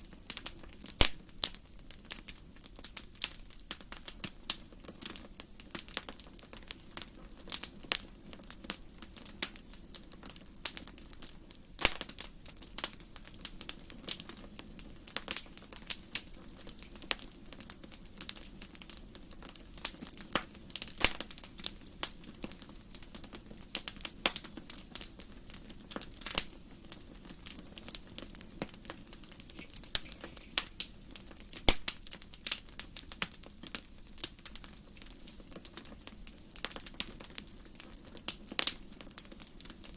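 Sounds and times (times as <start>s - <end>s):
wood fire crackling: 0.0s - 39.9s
low hiss of flames: 20.4s - 33.4s.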